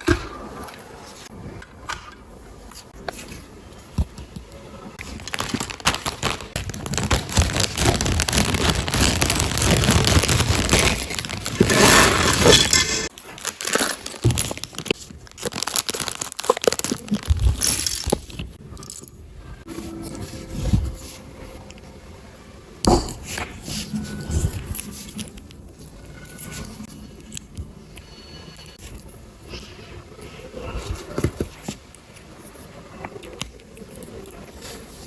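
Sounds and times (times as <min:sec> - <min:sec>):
plastic packaging crinkling: 0:05.0 - 0:18.6.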